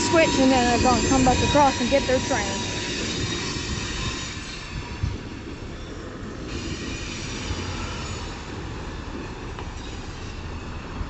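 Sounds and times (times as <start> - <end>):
diesel locomotive rumbling: 0.0 - 11.0
faint wheel squeal: 0.0 - 11.0.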